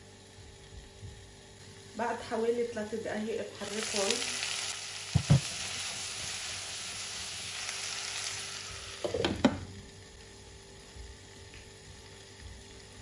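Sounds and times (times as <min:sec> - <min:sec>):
vegetables sizzling in oil: 0:03.0 - 0:11.2.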